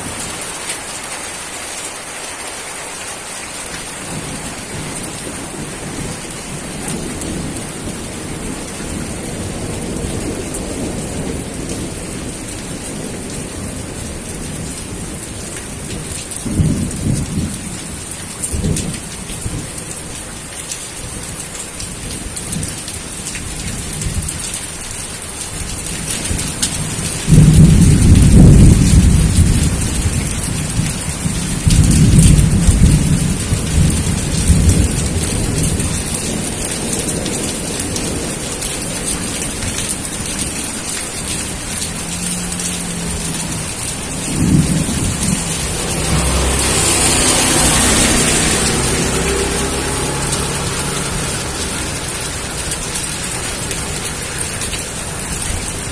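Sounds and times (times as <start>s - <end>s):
steady rain: 0.0s - 55.9s
thunder rumbling: 26.3s - 55.9s.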